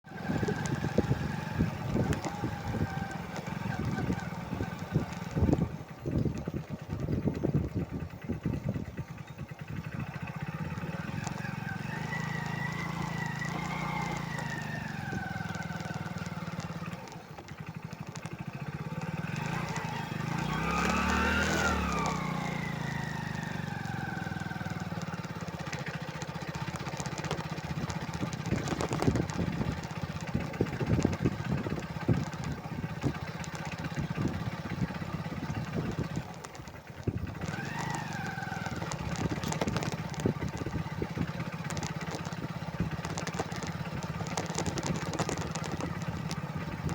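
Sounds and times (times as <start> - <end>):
motorcycle engines revving: 0.0 - 46.9
irregular knocks and rattles: 36.0 - 46.9.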